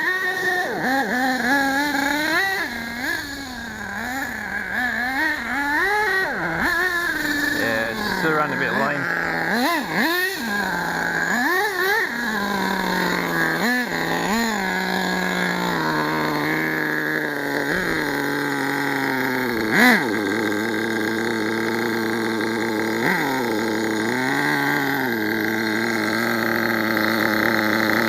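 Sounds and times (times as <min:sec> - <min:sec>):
model truck engine idling and revving: 0:00.0 - 0:28.0
man talking: 0:07.5 - 0:09.5.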